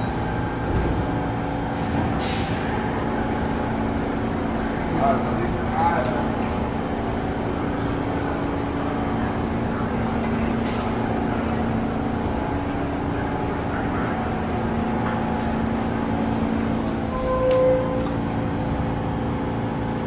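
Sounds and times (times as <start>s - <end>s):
train electrical hum: 0.0s - 20.0s.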